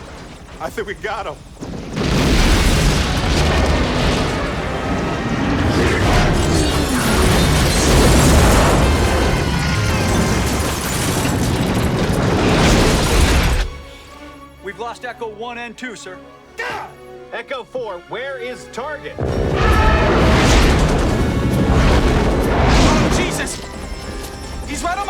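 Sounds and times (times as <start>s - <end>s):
explosions and booming rumble: 0.0s - 14.0s, 19.2s - 25.0s
orchestral music: 2.9s - 25.0s.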